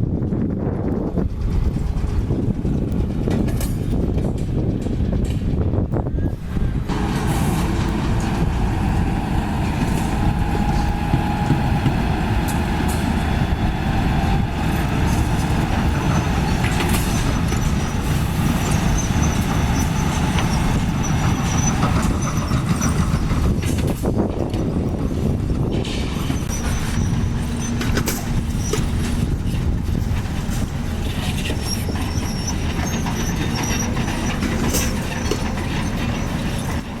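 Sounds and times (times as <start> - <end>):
heavy machinery diesel engine rumble: 0.0 - 37.0
faint high squeal: 31.5 - 34.4.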